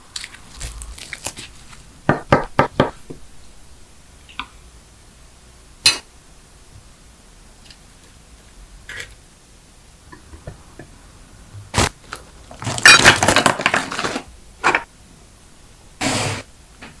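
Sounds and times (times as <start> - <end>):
plastic wrapper rustling: 0.1 - 1.9, 11.8 - 14.3.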